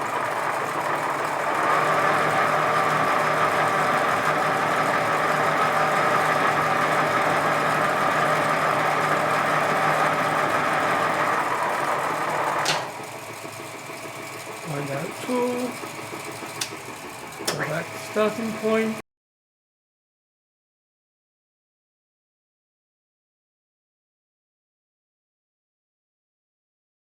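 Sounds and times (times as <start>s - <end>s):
lathe stopping click: 0.0s - 13.2s, 15.7s - 19.0s
lathe mechanical whine: 0.0s - 19.0s.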